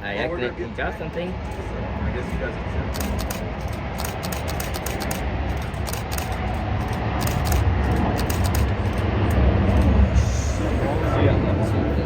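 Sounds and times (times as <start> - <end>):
jet engine rumble: 0.0 - 12.0
camera shutter clicks: 3.0 - 9.1.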